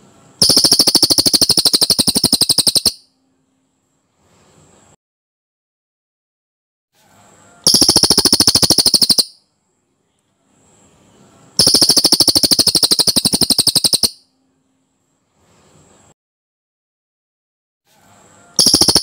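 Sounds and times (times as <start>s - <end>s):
bird rolling trill: 0.4s - 3.0s, 7.6s - 9.3s, 11.6s - 14.2s, 18.6s - 19.0s.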